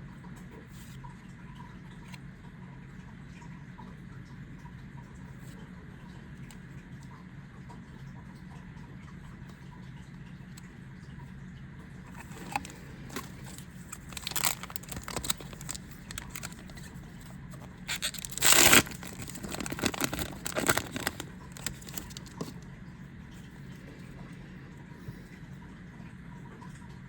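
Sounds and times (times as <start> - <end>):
low steady hum: 0.0 - 27.0
foil pack tearing: 12.2 - 22.6
foil rustling and crinkling: 12.2 - 22.6
trading cards scraping: 12.2 - 22.6.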